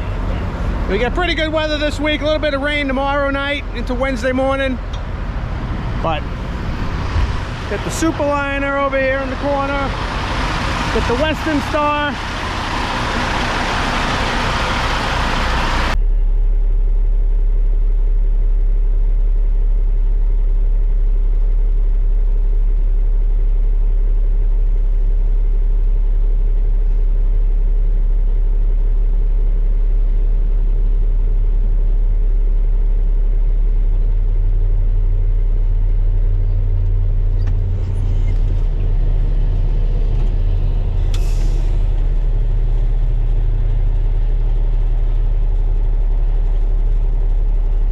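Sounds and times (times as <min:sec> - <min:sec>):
broad loud noise: 0:00.0 - 0:16.8
diesel truck engine drone: 0:00.0 - 0:47.9.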